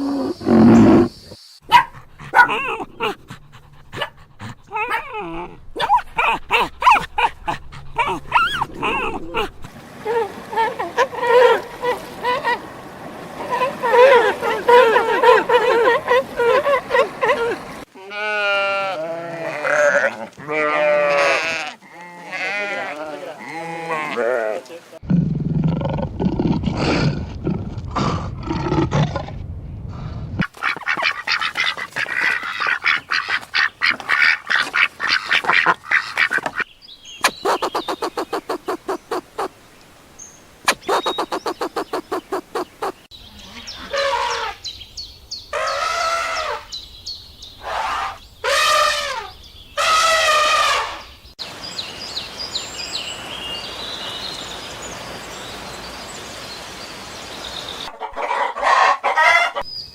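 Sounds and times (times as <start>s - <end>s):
pulsed animal calls: 4.4s - 17.8s, 37.2s - 39.6s, 40.7s - 43.1s
bird calls: 30.4s - 56.2s
long calls with bending pitch: 40.7s - 43.1s.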